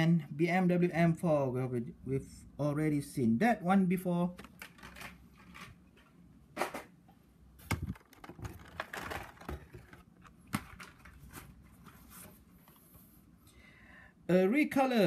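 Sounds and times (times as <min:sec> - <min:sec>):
cardboard and plastic rustling: 0:04.4 - 0:06.1, 0:07.6 - 0:13.2.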